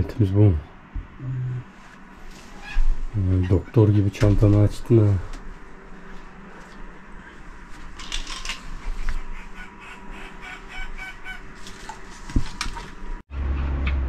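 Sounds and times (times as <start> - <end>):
low steady hum: 0.0 - 14.0
fowl clucking calls: 8.9 - 11.6.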